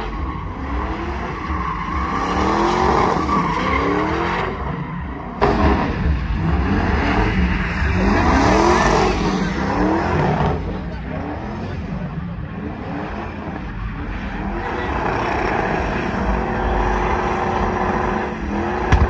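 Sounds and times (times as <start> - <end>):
tires screeching: 0.0 - 19.0
truck engine revving: 0.0 - 19.0.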